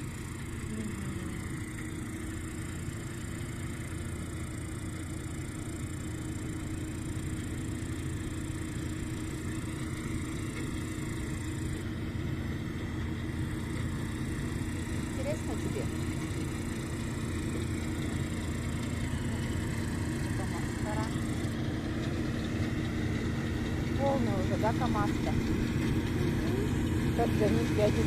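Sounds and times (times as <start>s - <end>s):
diesel engines rumbling: 0.0s - 28.0s
grasshoppers chirping: 13.2s - 28.0s.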